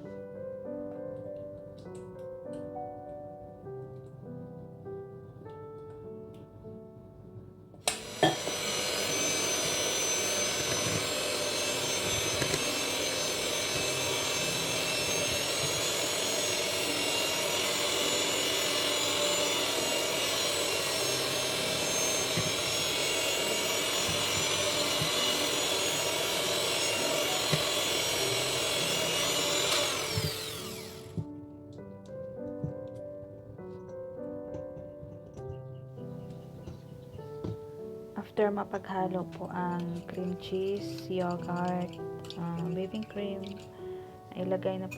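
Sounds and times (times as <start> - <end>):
electric mixer running: 7.8 - 31.4, 39.4 - 44.9.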